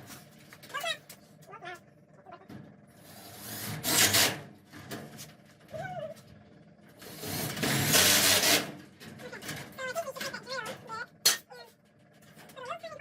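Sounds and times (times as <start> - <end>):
power drill running: 7.0 - 8.7.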